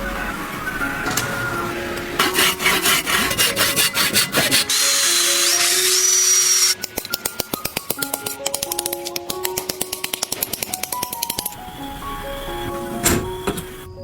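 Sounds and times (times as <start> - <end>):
background music: 0.0 - 14.0
power tool whining: 2.2 - 6.8
tool scraping on metal: 2.2 - 6.8.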